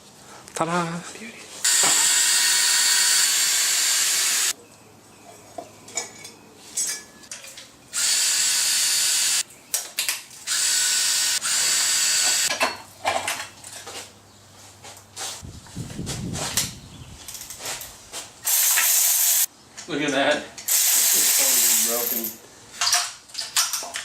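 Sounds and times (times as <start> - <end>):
power tool spinning bolts: 1.7 - 4.6, 8.0 - 9.4, 10.5 - 12.5, 18.4 - 19.5, 20.7 - 22.4
parts clicking and knocking: 22.8 - 24.0.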